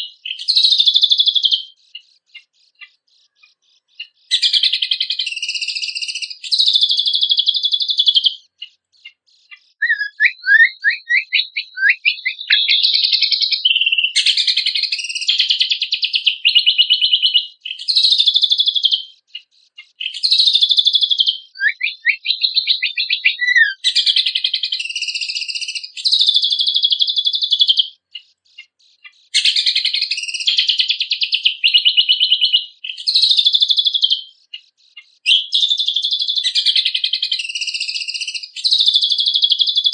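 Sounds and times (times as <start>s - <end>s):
bird trilling: 9.0s - 15.4s, 20.0s - 25.8s
bird down-slurred whistles: 9.8s - 14.1s, 21.5s - 25.1s.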